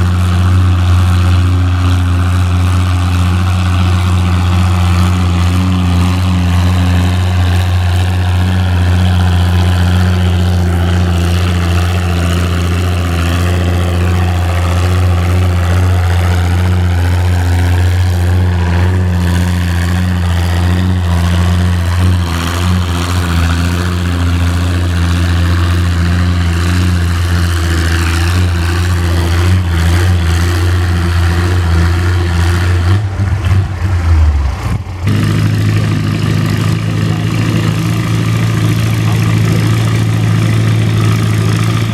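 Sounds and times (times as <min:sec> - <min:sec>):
tractor engine running hard: 0:00.0 - 0:41.9.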